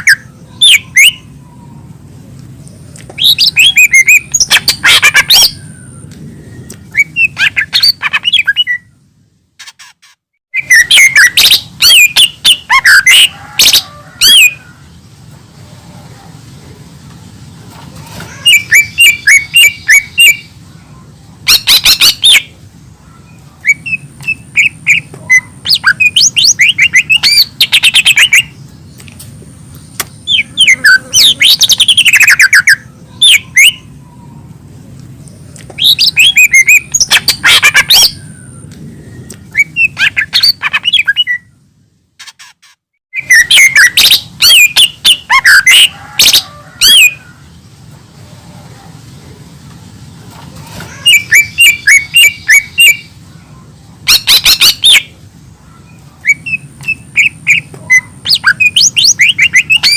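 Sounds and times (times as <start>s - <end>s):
bird singing chirps and whistles: 0.0s - 1.8s, 3.1s - 9.0s, 10.5s - 14.6s, 18.4s - 20.5s, 21.5s - 22.5s, 23.6s - 28.6s, 30.2s - 33.9s, 35.8s - 41.6s, 43.1s - 47.2s, 51.0s - 53.1s, 54.1s - 55.2s, 55.8s - 59.9s.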